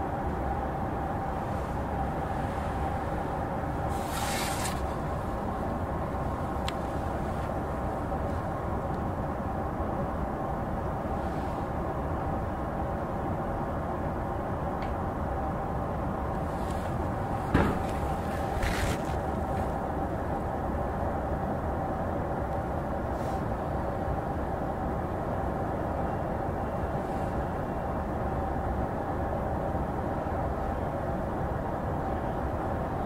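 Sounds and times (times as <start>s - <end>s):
train equipment hum: 0.0s - 33.0s
brief hiss: 3.9s - 4.9s
short knock: 17.5s - 18.8s.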